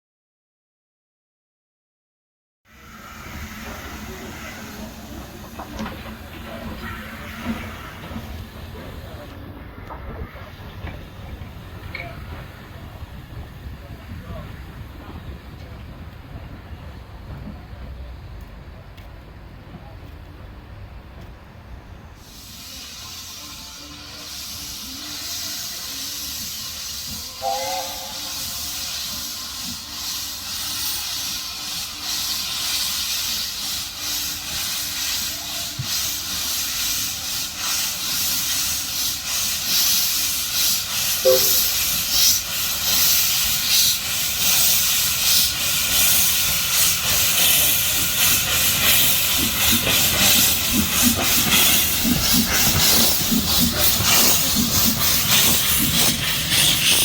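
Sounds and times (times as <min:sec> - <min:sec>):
steam locomotive hiss and exhaust beats: 0:02.7 - 0:57.0
steam whistle: 0:26.8 - 0:29.6, 0:41.1 - 0:42.4.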